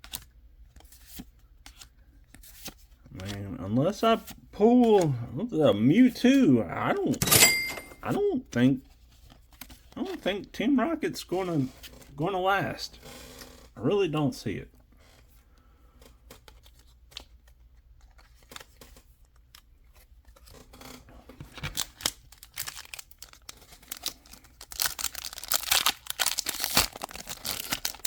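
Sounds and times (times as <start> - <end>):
foil wrapper crinkling: 21.6 - 28.0
foil wrapper tearing: 21.7 - 28.0.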